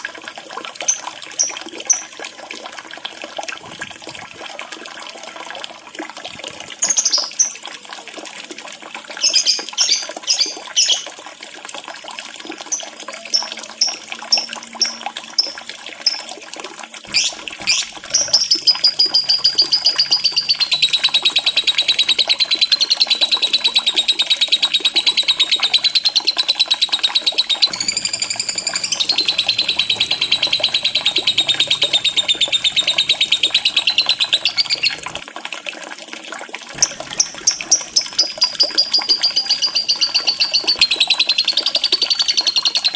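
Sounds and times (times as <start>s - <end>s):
running water trickling: 0.0s - 42.9s
lovebird chirping and trilling: 17.1s - 35.2s, 36.8s - 42.9s.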